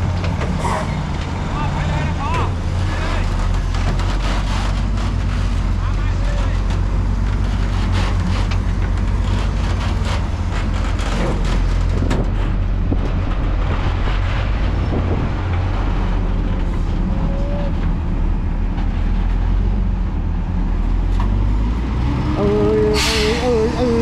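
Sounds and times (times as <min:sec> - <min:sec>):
diesel truck engines rumbling: 0:00.0 - 0:24.0
clatter: 0:02.9 - 0:18.0.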